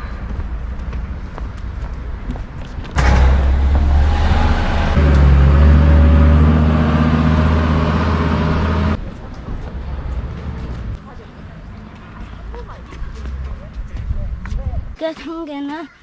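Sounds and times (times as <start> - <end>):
vehicle engine running: 3.0 - 9.0.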